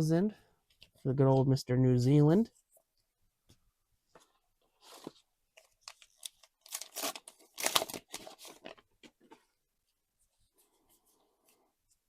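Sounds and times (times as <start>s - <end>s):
wrapper tearing and crinkling: 5.8s - 8.8s.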